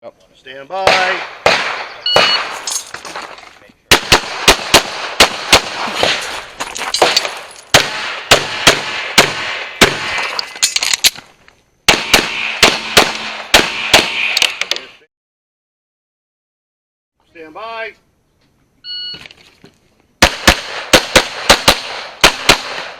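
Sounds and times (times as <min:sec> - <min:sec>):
pistol firing rapid shots: 0:00.8 - 0:02.5, 0:03.9 - 0:06.2, 0:07.0 - 0:10.2, 0:11.9 - 0:14.5, 0:20.2 - 0:22.9.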